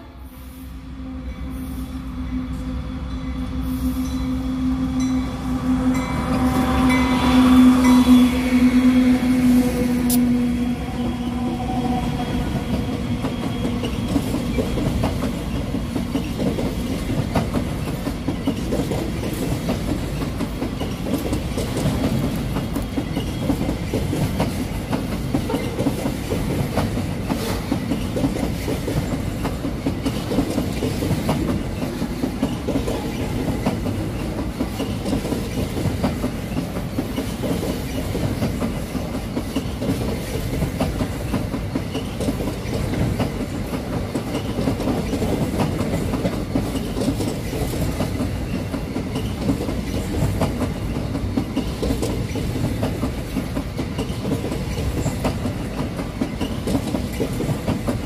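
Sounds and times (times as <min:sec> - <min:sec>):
locomotive engine hum: 0:00.7 - 0:38.4
train wheels clattering on rails: 0:03.6 - 0:58.0.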